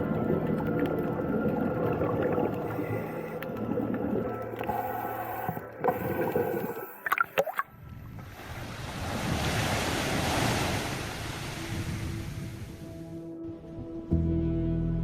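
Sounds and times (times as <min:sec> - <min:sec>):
ocean surf rushing: 0:08.4 - 0:13.1.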